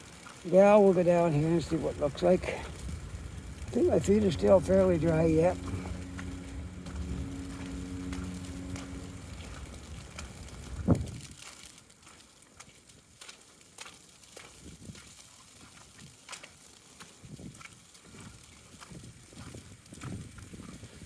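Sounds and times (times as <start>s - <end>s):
footsteps in wet snow: 0.0s - 21.0s
vehicle engine hum: 0.7s - 11.3s.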